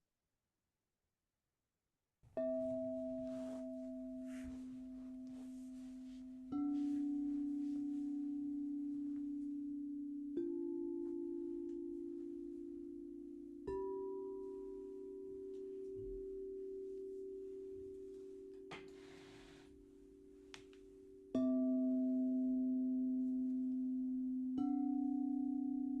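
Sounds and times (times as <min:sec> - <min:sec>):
crystal singing bowls ringing: 0:02.4 - 0:15.5.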